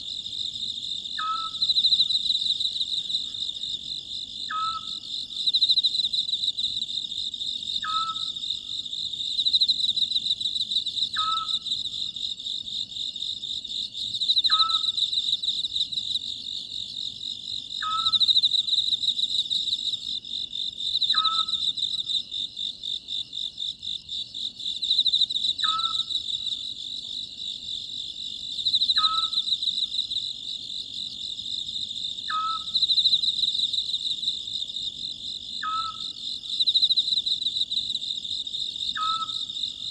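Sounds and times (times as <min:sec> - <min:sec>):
owl calling: 0:01.2 - 0:01.6, 0:04.5 - 0:05.0, 0:07.8 - 0:08.3, 0:11.2 - 0:11.6, 0:14.5 - 0:14.9, 0:17.8 - 0:18.2, 0:21.1 - 0:21.6, 0:25.6 - 0:26.1, 0:29.0 - 0:29.4, 0:32.3 - 0:32.8, 0:35.6 - 0:36.1, 0:39.0 - 0:39.5
insects chirring: 0:13.9 - 0:39.9.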